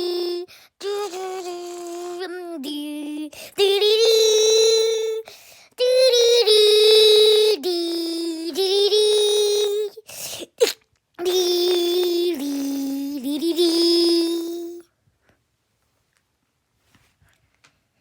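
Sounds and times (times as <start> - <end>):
breathy hiss: 0.0 - 6.0, 7.5 - 14.9.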